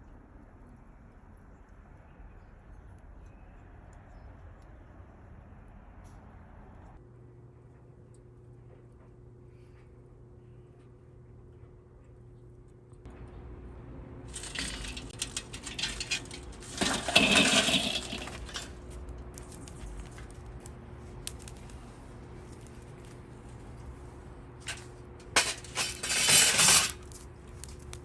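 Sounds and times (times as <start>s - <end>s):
charcoal chunks clattering: 14.3s - 28.0s.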